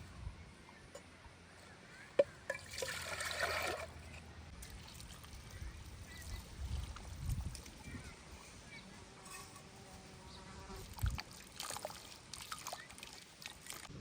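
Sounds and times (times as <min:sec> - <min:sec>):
liquid pouring: 0:02.5 - 0:03.9.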